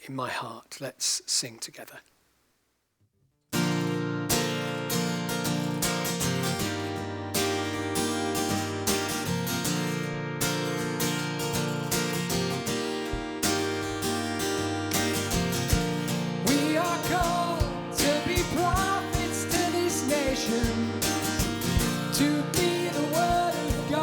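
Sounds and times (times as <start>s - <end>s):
acoustic guitar strumming chords: 3.6s - 24.0s.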